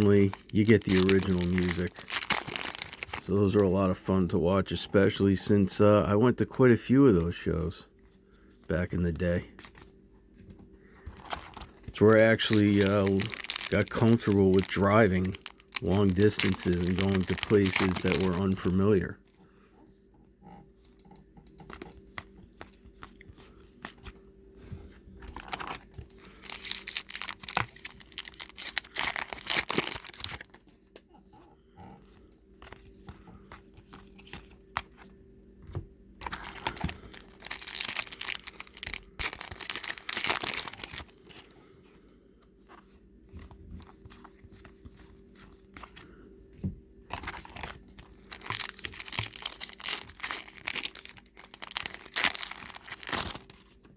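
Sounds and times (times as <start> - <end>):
card packs tearing open: 0.0 - 3.3, 11.2 - 19.2, 25.3 - 30.6, 36.2 - 41.5, 47.1 - 53.8
cards being handled: 0.0 - 3.3, 9.0 - 19.1
wrappers crinkling: 0.0 - 3.6, 11.1 - 19.4, 25.3 - 30.7, 36.2 - 41.5, 47.1 - 53.9.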